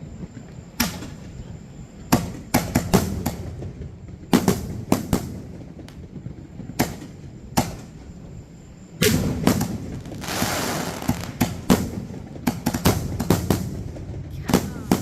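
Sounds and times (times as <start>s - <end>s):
fireworks bangs: 2.0s - 8.3s, 8.9s - 15.0s
fireworks hiss: 2.1s - 15.0s.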